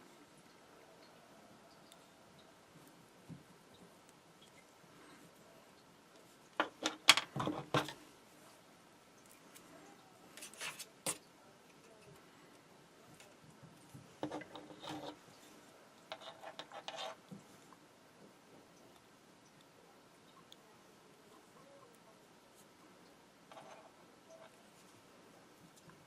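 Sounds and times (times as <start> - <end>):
wire clicking and rubbing: 13.2 - 15.4, 16.0 - 17.4, 23.5 - 24.9.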